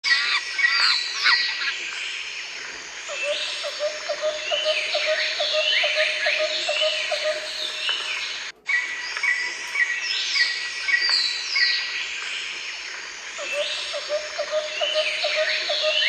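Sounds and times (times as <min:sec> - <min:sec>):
birds chirping and whistling: 0:03.1 - 0:12.6, 0:13.4 - 0:16.0
low repeating bird call: 0:13.4 - 0:16.0.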